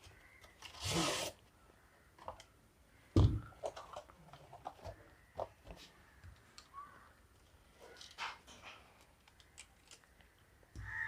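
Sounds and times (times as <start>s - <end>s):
packaging scrape: 0.6s - 1.4s.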